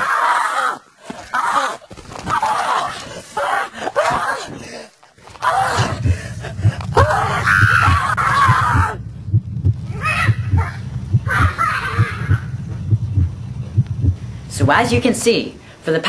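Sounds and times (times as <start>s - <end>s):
person screaming and wailing: 5.4s - 6.1s, 6.9s - 9.0s
low thudding: 5.8s - 15.1s.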